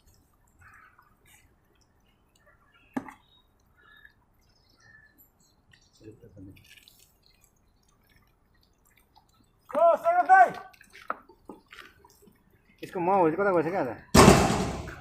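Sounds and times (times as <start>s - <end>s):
dogs chewing food: 10.5s - 13.0s
low thump: 14.2s - 15.0s.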